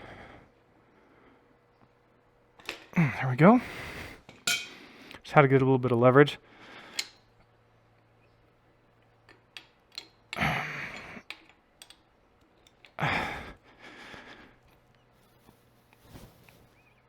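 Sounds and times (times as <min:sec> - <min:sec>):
small clicks and handling noise: 0:01.8 - 0:03.0, 0:08.9 - 0:13.0.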